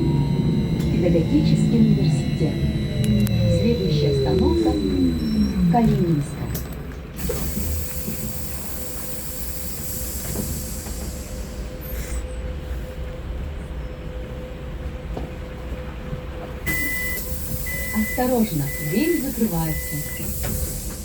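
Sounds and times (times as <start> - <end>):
high electronic beep: 0.0 - 6.9, 16.7 - 20.3
low hum: 0.0 - 9.1
thin steady whine: 0.0 - 11.8, 16.7 - 21.0
hiss: 7.2 - 12.2.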